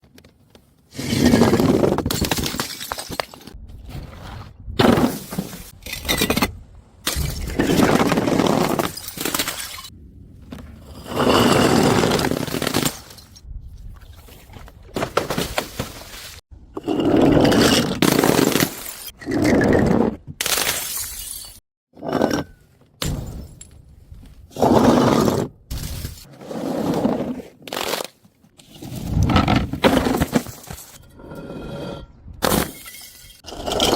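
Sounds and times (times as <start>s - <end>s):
glass bottles smashing: 2.1s - 3.5s, 8.8s - 9.9s, 20.6s - 21.6s, 32.4s - 33.5s.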